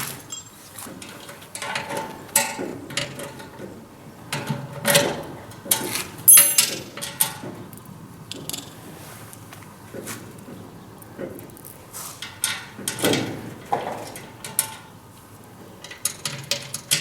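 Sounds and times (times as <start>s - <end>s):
metal parts clanking and scraping: 0.0s - 3.7s, 4.3s - 7.6s, 12.0s - 14.9s, 15.8s - 17.0s.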